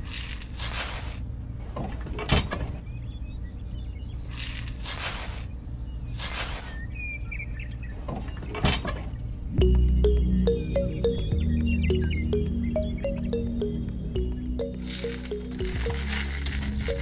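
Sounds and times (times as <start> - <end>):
plastic scraping in sand: 4.4 - 5.5, 6.1 - 6.8.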